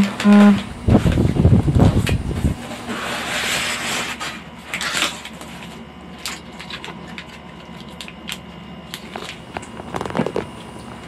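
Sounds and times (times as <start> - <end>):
plastic packaging crinkling: 2.8 - 11.0.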